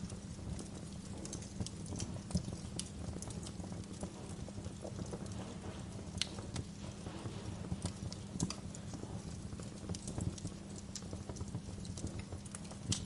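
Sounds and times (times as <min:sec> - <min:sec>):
fire popping and snapping: 0:00.0 - 0:13.0
wood fire crackling: 0:00.0 - 0:13.0.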